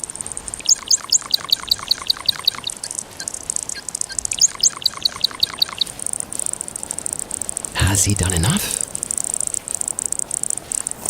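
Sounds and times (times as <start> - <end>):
bird gurgling song: 0.5 - 6.0.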